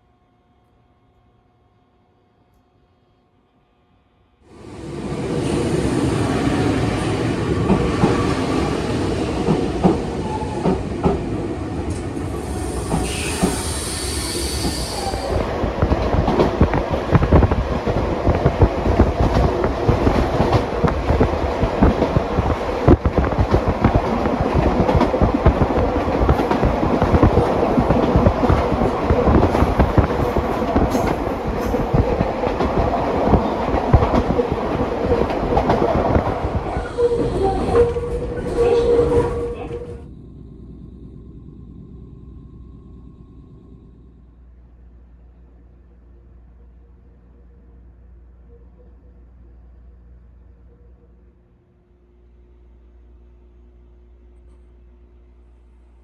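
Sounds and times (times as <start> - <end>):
train running on rails: 0.0 - 56.0
high-pitched hiss or squeal: 12.4 - 15.4.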